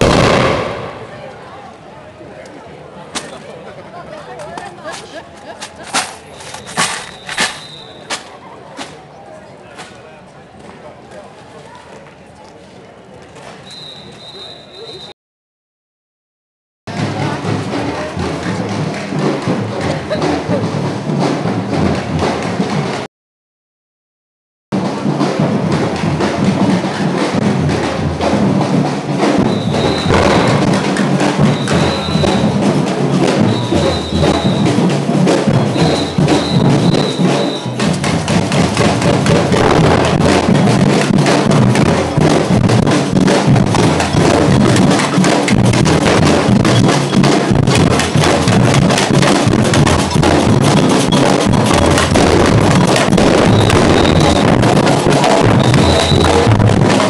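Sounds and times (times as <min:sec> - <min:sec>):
marching drum band: 0:00.0 - 0:01.4, 0:04.6 - 0:09.0, 0:16.9 - 0:23.1, 0:24.7 - 0:57.0
short high whistle blasts: 0:06.4 - 0:08.1, 0:13.6 - 0:15.1, 0:29.5 - 0:30.2, 0:31.6 - 0:32.4, 0:33.5 - 0:34.7, 0:35.6 - 0:37.8, 0:53.5 - 0:54.4.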